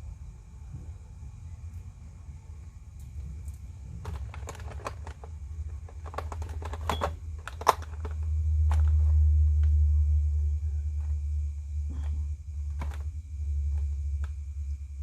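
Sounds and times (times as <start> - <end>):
plastic packaging clicks and taps: 4.0 - 9.0
low rumble: 7.8 - 15.0.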